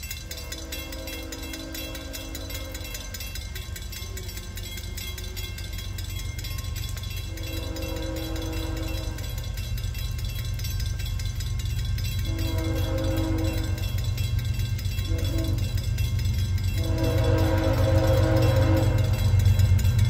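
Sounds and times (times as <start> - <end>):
locomotive engine rumble: 0.0 - 20.0
locomotive air horn blasts: 0.2 - 3.2, 7.3 - 9.6, 12.2 - 14.1, 15.0 - 16.0, 16.7 - 19.6.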